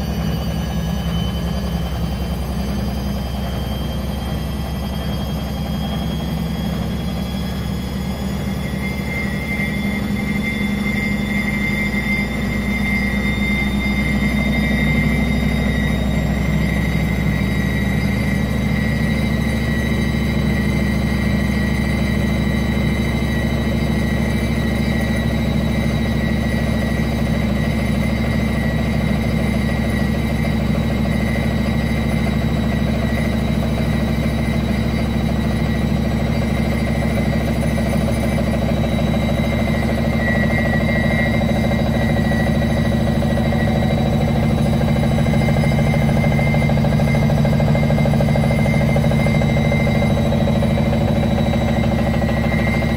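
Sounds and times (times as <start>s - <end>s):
washing machine spinning: 0.0s - 52.9s.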